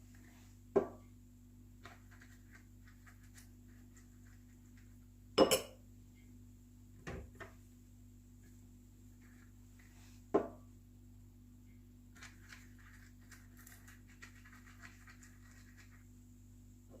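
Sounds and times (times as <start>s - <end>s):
faint steady hum: 0.0s - 17.0s
kitchenware knocking and clinking: 5.4s - 5.8s.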